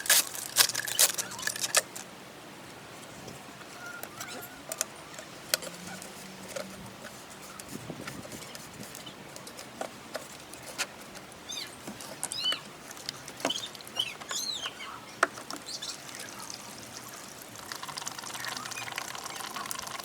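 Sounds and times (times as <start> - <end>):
bird chirping: 11.4 - 20.0.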